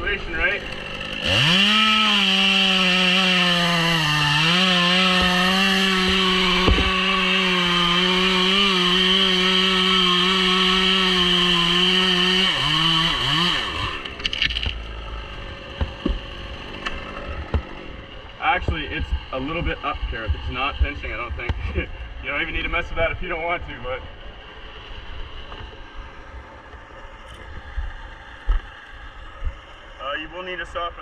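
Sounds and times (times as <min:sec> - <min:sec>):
chainsaw cutting wood: 0:00.3 - 0:19.3.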